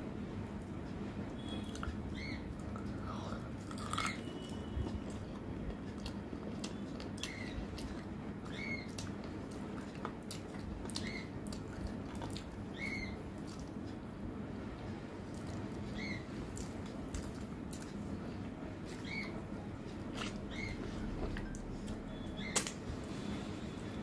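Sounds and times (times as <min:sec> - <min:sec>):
steady low hum: 0:00.0 - 0:24.0
chewing and wet mouth clicks: 0:01.7 - 0:02.0, 0:03.6 - 0:12.6, 0:13.4 - 0:14.0, 0:16.5 - 0:18.1, 0:19.9 - 0:22.8.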